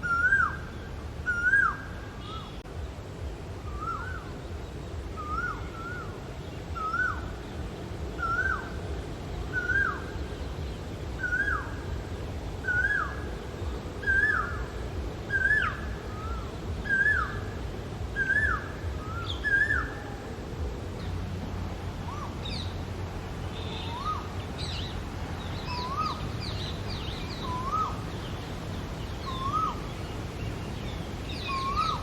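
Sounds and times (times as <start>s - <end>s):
low background rumble: 0.0s - 32.0s
koel calling: 23.5s - 24.8s.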